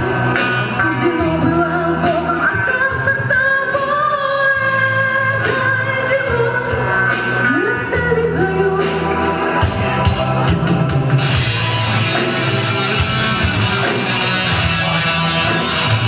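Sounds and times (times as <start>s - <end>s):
live rock band: 0.0s - 16.0s.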